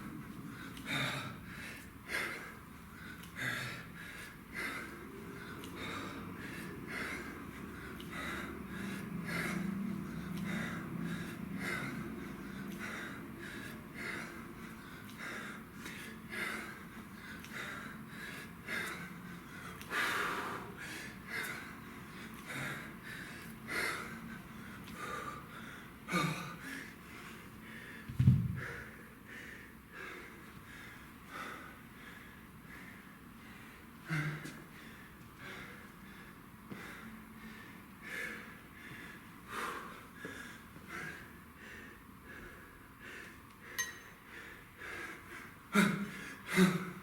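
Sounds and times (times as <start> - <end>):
person breathing hard: 0.0 - 47.0
loud low thud: 28.1 - 28.6.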